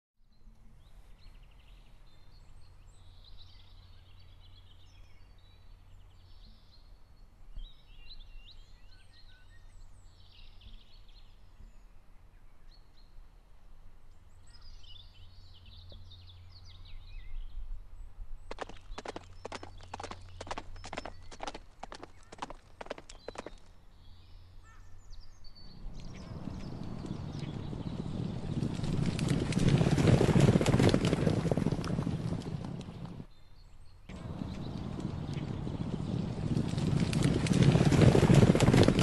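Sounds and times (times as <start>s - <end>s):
wild birds chirping: 0.3s - 13.4s, 14.1s - 39.0s
steady low hum: 33.9s - 37.7s.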